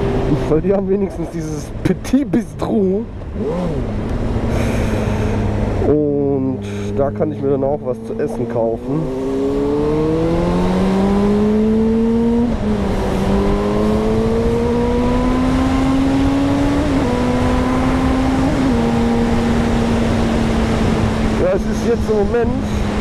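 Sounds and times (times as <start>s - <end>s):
motorcycle engine accelerating: 0.0s - 23.0s
wind noise: 8.1s - 23.0s.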